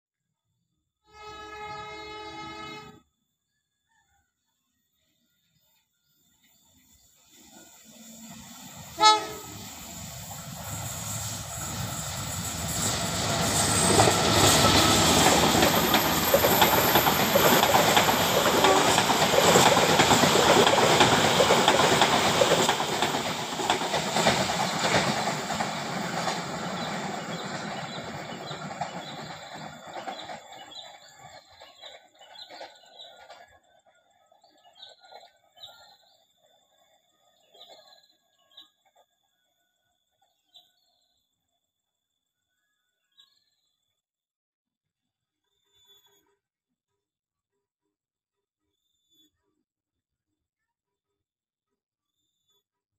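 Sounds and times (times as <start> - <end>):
train wheels clattering: 10.4 - 33.5
faint bird chirps: 45.4 - 46.4, 48.6 - 49.7.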